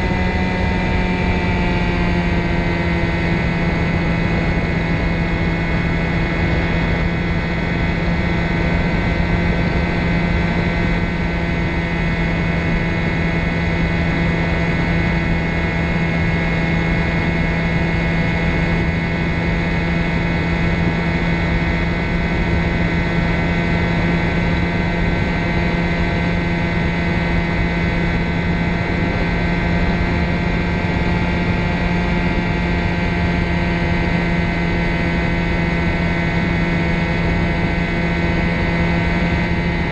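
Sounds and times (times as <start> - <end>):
ultralight engine and propeller drone: 0.0 - 39.9.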